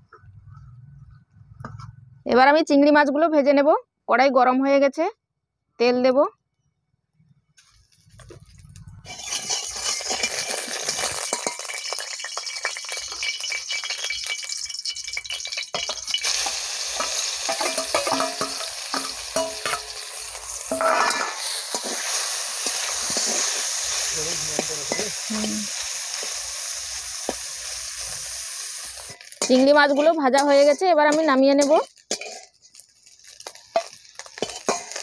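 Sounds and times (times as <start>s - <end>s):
prawns sizzling in oil: 7.6s - 35.0s
hot oil hissing and spitting: 7.9s - 35.0s
metal spatula scraping pan: 9.1s - 12.4s, 15.4s - 28.2s, 28.9s - 35.0s.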